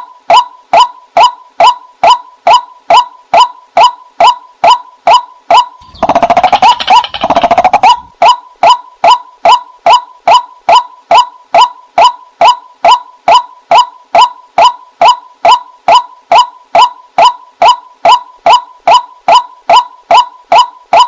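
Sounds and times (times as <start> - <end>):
waterhen calls: 5.5 - 9.2
rattling bird chatter: 5.8 - 8.1.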